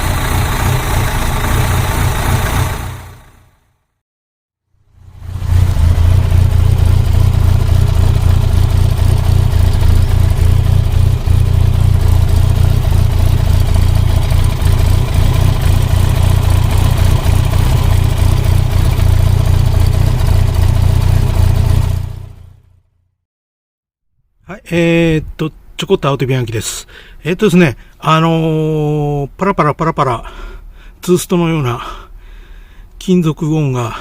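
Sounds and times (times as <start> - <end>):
car engine and exhaust drone: 0.0 - 3.8, 4.8 - 22.9.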